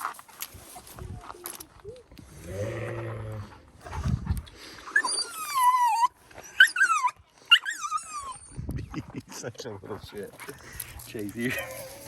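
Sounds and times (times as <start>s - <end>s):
dog whining and yelping: 4.9s - 8.6s.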